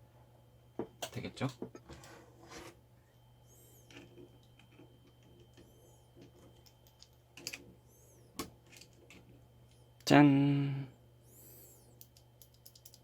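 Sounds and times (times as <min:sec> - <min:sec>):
plastic keyboard clicks: 0:12.4 - 0:13.0.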